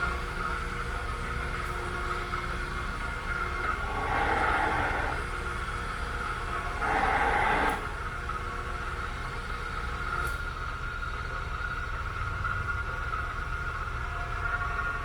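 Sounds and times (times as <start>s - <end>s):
milling machine humming: 1.8s - 9.5s.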